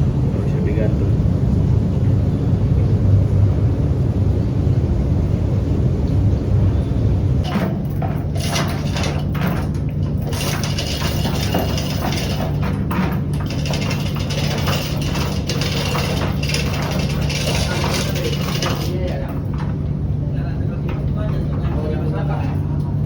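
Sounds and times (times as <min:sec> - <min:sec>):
low machinery hum: 0:00.0 - 0:23.0
knocks and clatter: 0:07.4 - 0:23.0.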